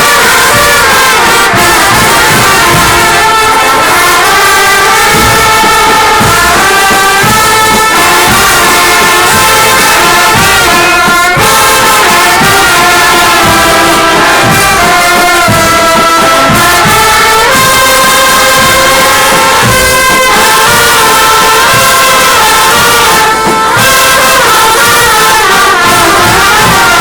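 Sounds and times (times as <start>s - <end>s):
brass chords: 0.0s - 27.0s
low drum hits: 4.9s - 17.5s.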